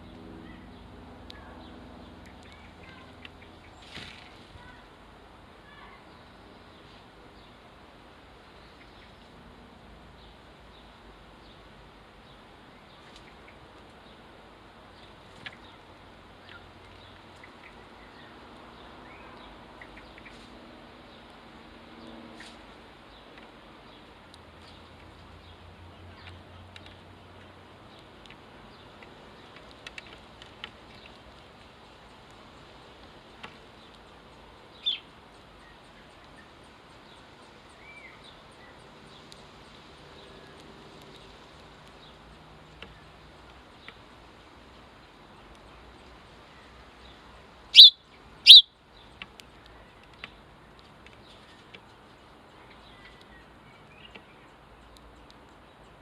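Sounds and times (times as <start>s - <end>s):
faint outdoor background: 0.0s - 56.0s
sparrows chirping: 33.6s - 56.0s
sparrow chirp: 34.1s - 39.3s, 47.8s - 49.2s.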